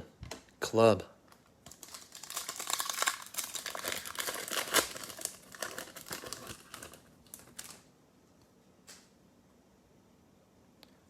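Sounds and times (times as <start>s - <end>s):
foil wrapper crinkling and tearing: 1.6s - 7.9s.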